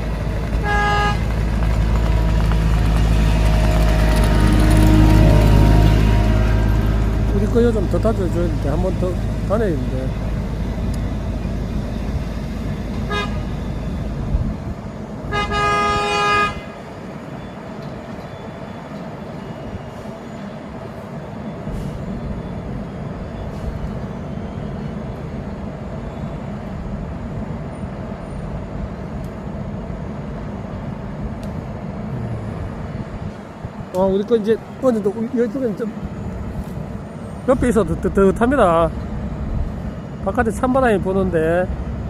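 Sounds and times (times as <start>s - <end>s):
paving machinery engines running: 0.0s - 42.0s
vehicle horn: 0.6s - 1.3s, 3.1s - 7.8s, 13.0s - 13.6s, 15.3s - 16.8s.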